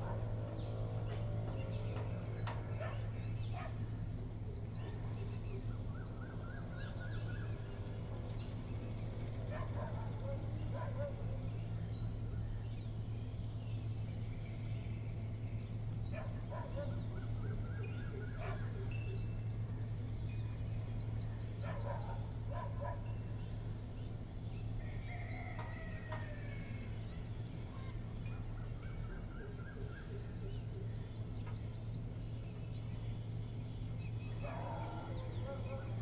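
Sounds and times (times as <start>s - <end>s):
small birds chirping: 0.0s - 36.0s
steady low hum: 0.0s - 36.0s.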